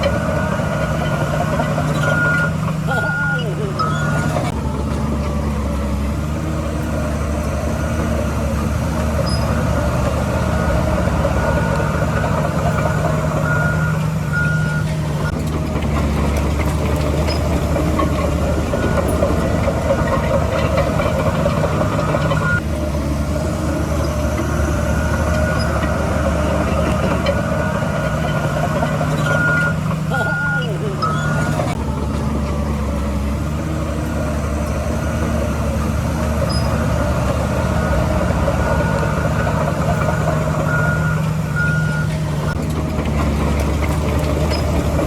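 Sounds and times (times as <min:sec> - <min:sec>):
reversing alarm beeping: 0:00.0 - 0:04.6, 0:07.4 - 0:15.4, 0:17.1 - 0:22.6, 0:23.9 - 0:31.8, 0:34.3 - 0:42.6
diesel earthmoving machinery: 0:00.0 - 0:45.0.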